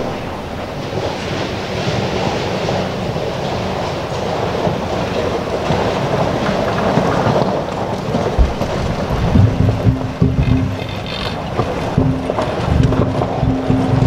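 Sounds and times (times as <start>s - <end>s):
train wheels rumbling on rail: 0.0s - 14.0s
low thumps: 8.3s - 14.0s.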